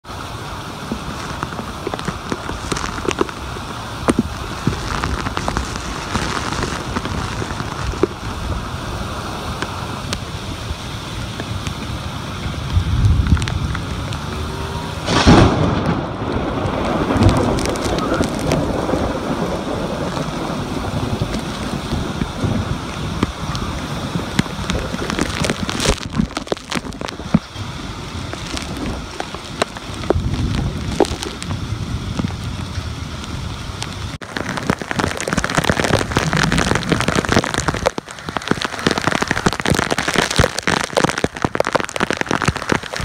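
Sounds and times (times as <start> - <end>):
gusting wind: 0.0 - 43.0
torrential rain pouring: 0.0 - 43.0
sudden loud burst: 14.5 - 20.1.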